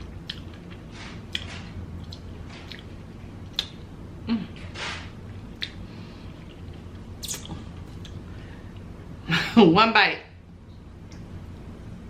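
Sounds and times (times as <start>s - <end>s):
sharp mouth clicks: 7.2s - 8.2s.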